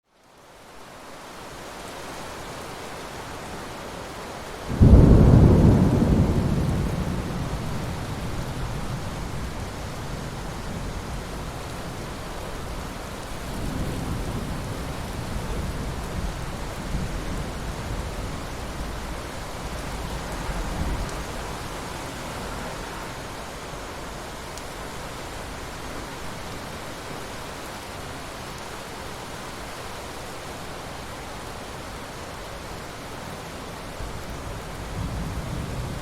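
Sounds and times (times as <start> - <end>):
rain hissing: 4.2 - 26.9
thunder: 4.7 - 10.8, 13.3 - 21.5.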